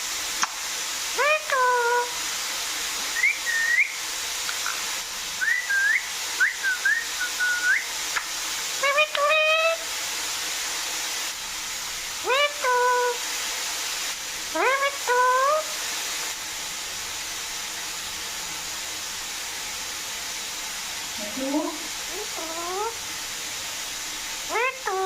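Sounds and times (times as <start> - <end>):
steady hiss: 0.0 - 25.0
parrot whistling: 3.2 - 4.0, 5.4 - 8.0, 8.8 - 9.8, 12.2 - 13.2, 14.5 - 15.7, 22.1 - 23.0, 24.5 - 25.0.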